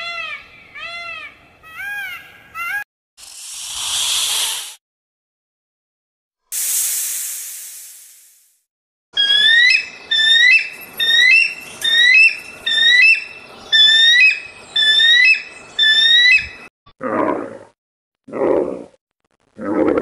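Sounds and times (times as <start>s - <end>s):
squeaky animal calls: 9.2s - 16.6s.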